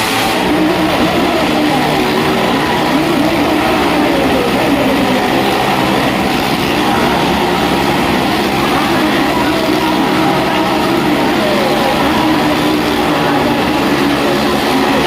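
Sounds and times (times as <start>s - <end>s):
car and motorcycle engines revving: 0.0s - 15.0s.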